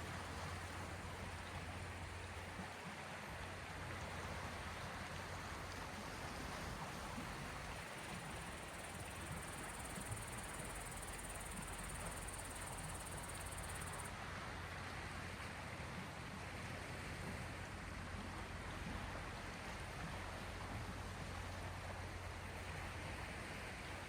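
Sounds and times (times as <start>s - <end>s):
faint high hiss: 7.9s - 14.1s.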